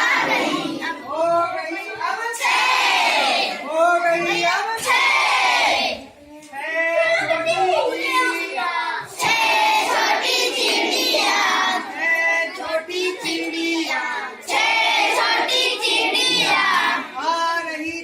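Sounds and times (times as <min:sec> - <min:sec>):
children singing nursery rhyme: 0:00.0 - 0:01.1, 0:07.3 - 0:17.2.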